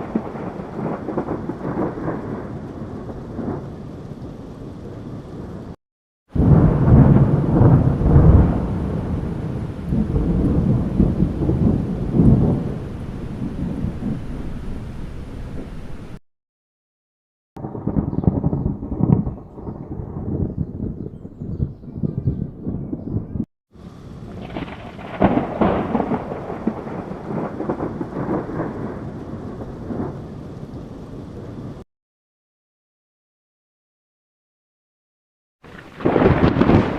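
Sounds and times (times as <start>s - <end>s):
thunder rumbling: 0.0s - 16.2s, 17.6s - 31.8s, 35.6s - 36.9s
rain hissing: 6.4s - 16.2s, 23.8s - 31.8s, 35.6s - 36.9s.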